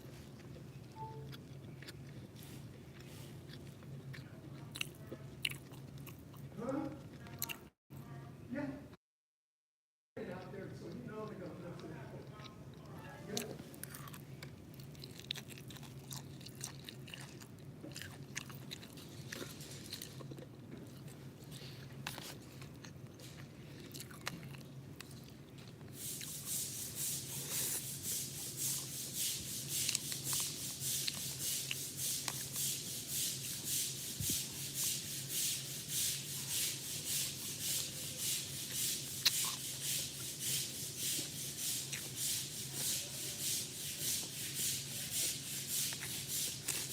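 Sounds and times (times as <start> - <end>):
close chewing: 0.0 - 7.7, 10.9 - 26.4, 39.0 - 40.3.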